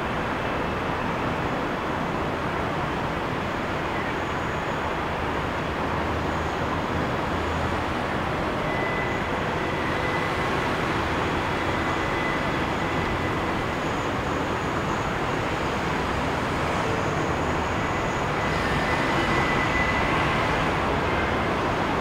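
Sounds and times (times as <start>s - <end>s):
city traffic noise: 0.0s - 22.0s
faint high squeal: 8.5s - 15.1s, 16.8s - 21.6s.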